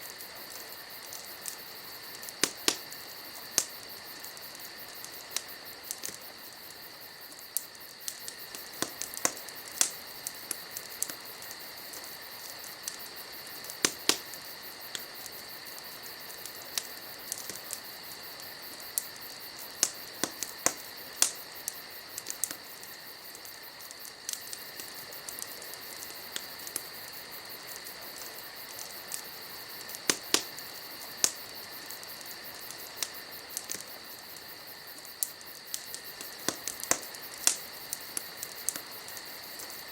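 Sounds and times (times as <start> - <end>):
campfire crackling and popping: 0.0 - 39.9
crickets trilling: 0.0 - 39.9.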